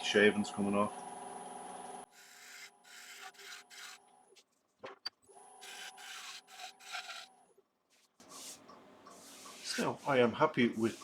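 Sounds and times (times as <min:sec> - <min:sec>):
bowl gouge scraping spinning wood: 0:02.2 - 0:04.1, 0:05.6 - 0:07.3.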